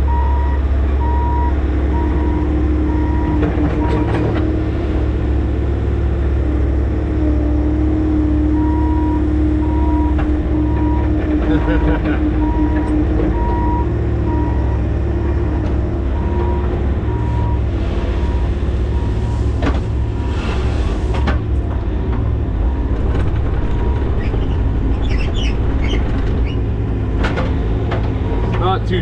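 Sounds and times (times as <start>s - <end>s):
skid steer engine running: 0.0s - 29.0s
reverse alarm beeping: 0.1s - 4.1s, 8.6s - 11.8s, 12.4s - 14.9s, 16.2s - 19.4s.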